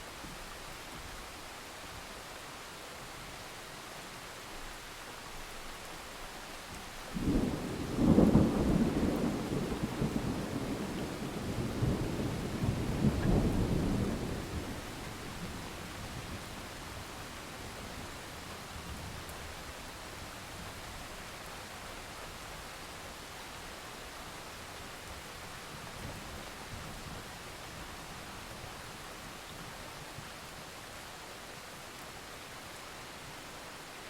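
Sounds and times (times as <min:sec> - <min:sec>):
steady rain hiss: 0:00.0 - 0:34.0
thunder rumbling: 0:07.2 - 0:16.4.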